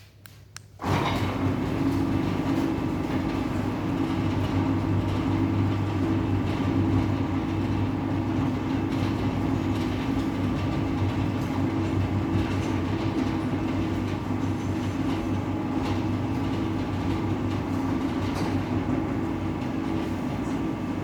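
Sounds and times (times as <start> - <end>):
gate motor humming: 0.8 - 12.3
heavy gate rolling along track: 0.8 - 20.0.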